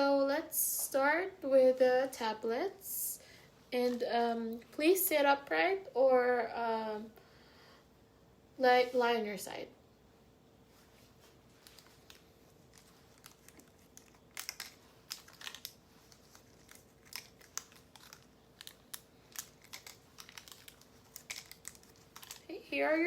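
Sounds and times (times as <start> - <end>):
faint steady hum: 0.0 - 23.0
packaging crinkling and tearing: 11.5 - 22.6.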